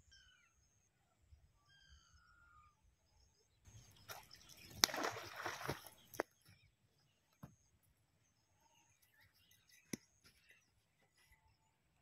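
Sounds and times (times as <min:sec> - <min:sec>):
faint whistled bird calls: 0:00.0 - 0:00.9, 0:01.6 - 0:03.4.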